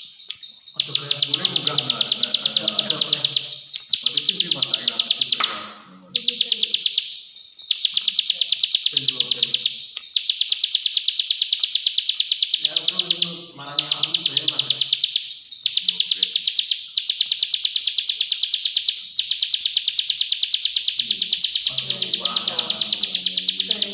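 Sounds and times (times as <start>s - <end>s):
bird dry clicking call: 0.0s - 7.0s, 7.6s - 15.0s.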